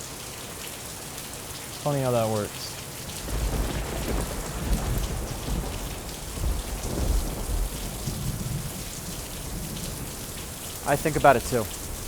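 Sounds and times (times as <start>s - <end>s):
steady rain: 0.0s - 12.0s
low rolling thunder: 3.0s - 12.0s.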